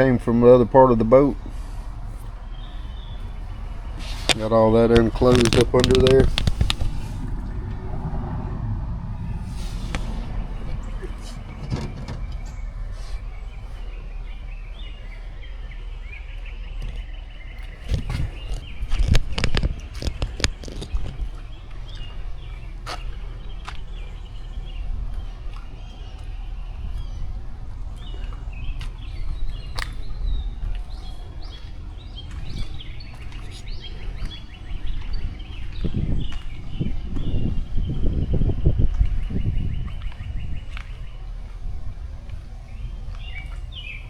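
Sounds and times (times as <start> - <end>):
birds chirping: 0.0 - 44.0
steady low rumble: 0.0 - 44.0
sharp knocks and thumps: 4.2 - 14.1.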